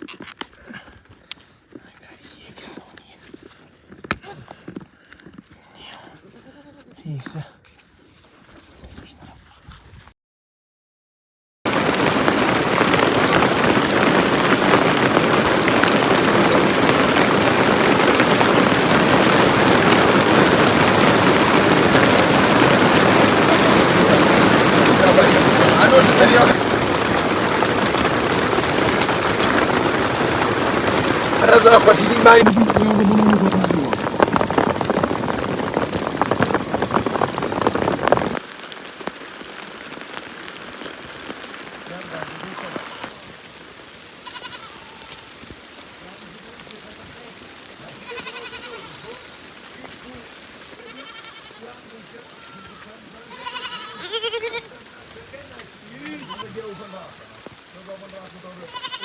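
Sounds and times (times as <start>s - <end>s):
heavy rain falling: 11.7s - 59.0s.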